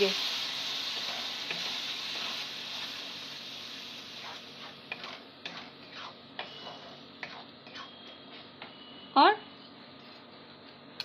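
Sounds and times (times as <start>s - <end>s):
tomato puree frying in oil: 0.0s - 7.8s
wooden spatula scraping pan: 4.2s - 8.0s.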